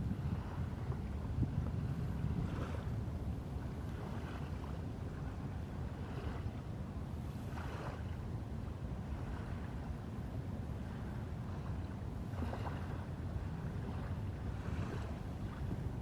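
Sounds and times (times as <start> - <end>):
wind noise: 0.0 - 3.1.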